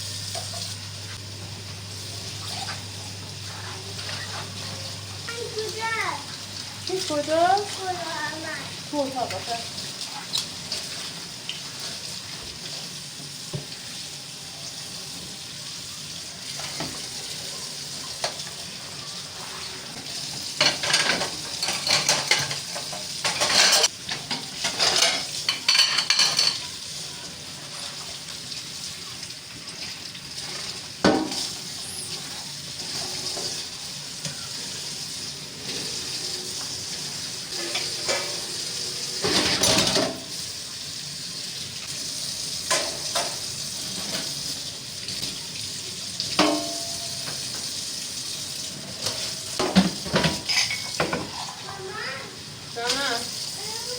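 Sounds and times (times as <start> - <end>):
pots and pans clattering: 16.5 - 17.2, 19.6 - 26.9, 29.6 - 34.6, 35.6 - 40.4, 42.5 - 45.4, 46.2 - 47.8, 48.6 - 51.7.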